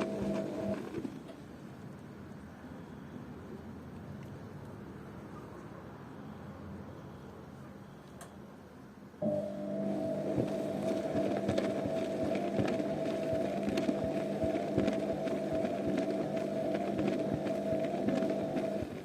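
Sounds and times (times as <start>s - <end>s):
washing machine humming: 0.0s - 1.8s, 9.2s - 19.0s.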